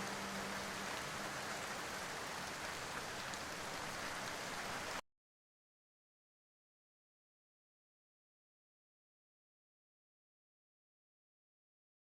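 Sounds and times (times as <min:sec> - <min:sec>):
rain hissing: 0:00.0 - 0:05.0.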